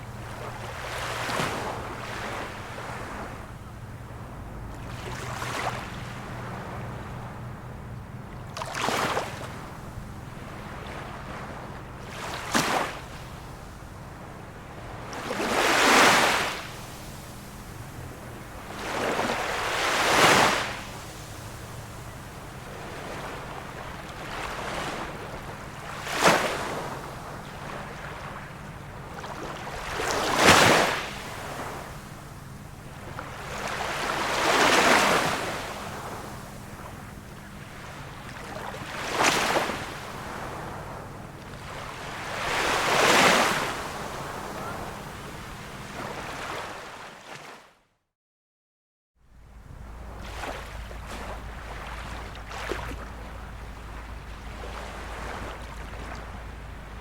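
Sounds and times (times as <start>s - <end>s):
small waves washing onto shore: 0.0s - 47.6s, 49.5s - 57.0s.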